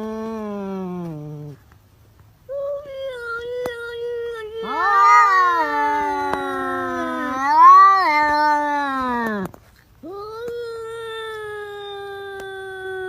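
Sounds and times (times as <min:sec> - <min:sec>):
cat yowling: 0:04.4 - 0:09.5.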